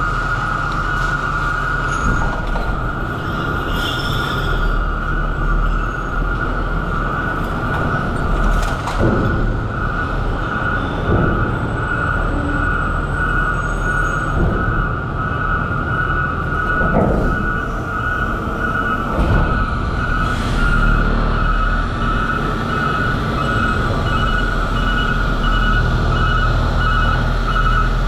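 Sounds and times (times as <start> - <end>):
garbage truck engine whine: 0.0 - 28.0
knocks and clunks: 6.7 - 12.9, 14.2 - 21.0.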